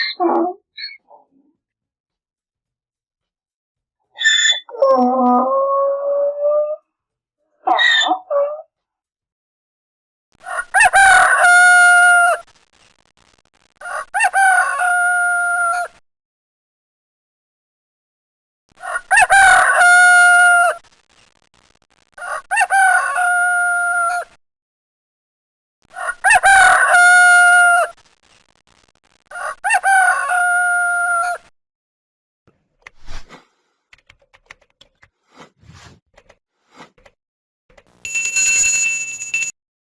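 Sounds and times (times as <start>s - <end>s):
rooster crowing: 10.4s - 12.4s, 13.8s - 16.0s, 18.8s - 20.8s, 22.2s - 24.3s, 26.0s - 28.0s, 29.3s - 31.5s.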